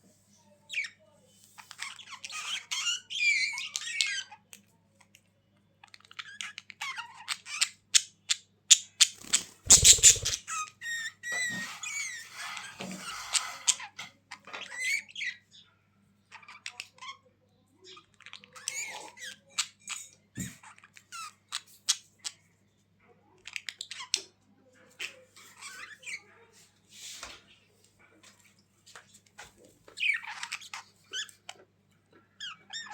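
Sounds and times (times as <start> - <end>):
budgerigars chattering and squawking: 8.8 - 10.7.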